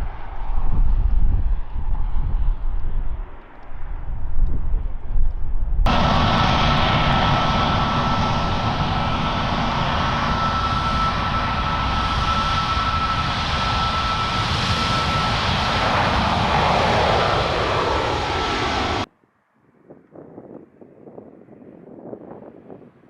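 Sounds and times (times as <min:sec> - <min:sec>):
jet engines rushing with whine: 0:05.9 - 0:19.1.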